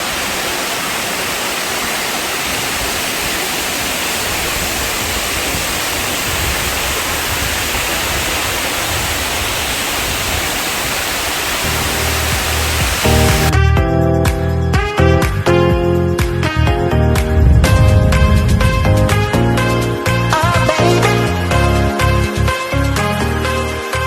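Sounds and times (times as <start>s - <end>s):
waterfall roaring: 0.0s - 13.5s
low music tones: 11.7s - 24.0s.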